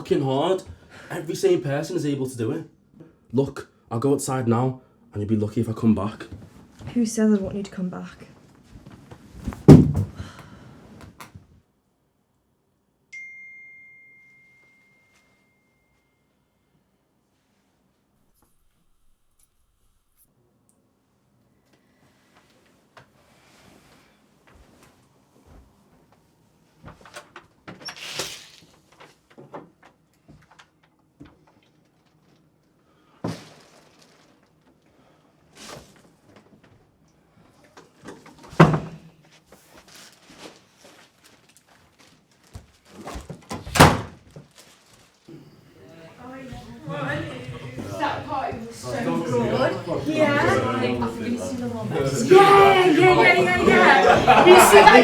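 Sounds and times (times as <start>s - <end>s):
high bell-like chime: 13.1s - 16.6s.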